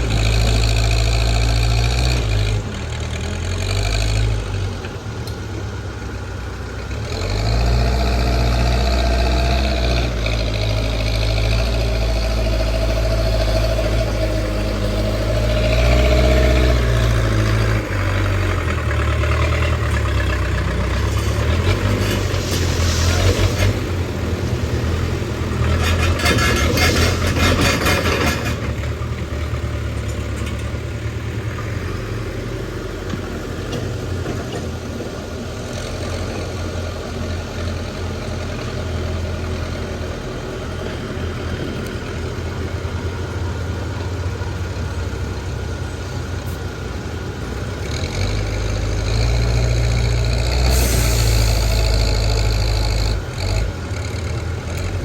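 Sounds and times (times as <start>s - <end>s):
diesel engine running: 0.0s - 55.0s
rough rattling noise: 9.4s - 32.0s.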